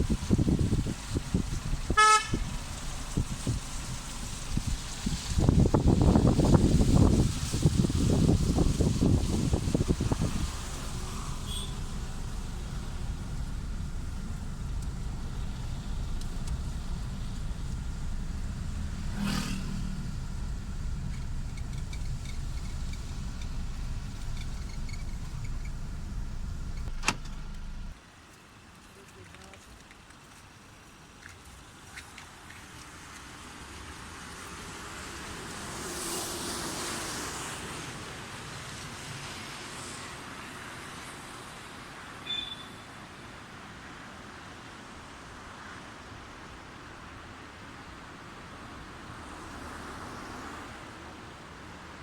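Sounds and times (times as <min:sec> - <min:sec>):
vehicle driving on road: 0:00.0 - 0:28.0, 0:47.9 - 0:51.9.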